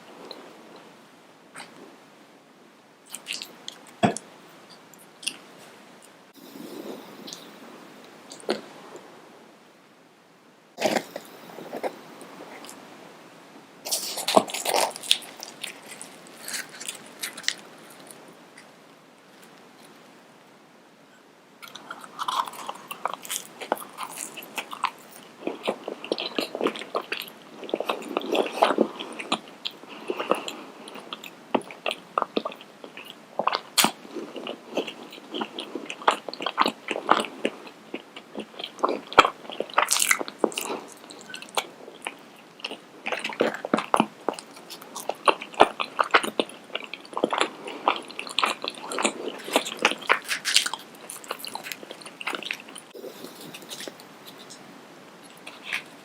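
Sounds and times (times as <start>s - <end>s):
crunching food: 10.8s - 12.8s, 13.9s - 18.7s, 21.6s - 54.6s, 55.2s - 56.0s
wet chewing: 13.9s - 18.7s, 21.6s - 54.6s.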